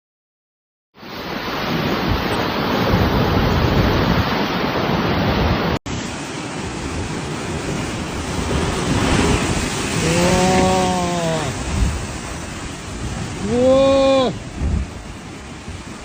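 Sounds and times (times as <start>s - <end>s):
wind and surf rushing: 1.0s - 16.0s
wind buffeting microphone: 1.6s - 16.0s
long drawn-out shouts: 10.0s - 11.6s, 13.4s - 14.4s.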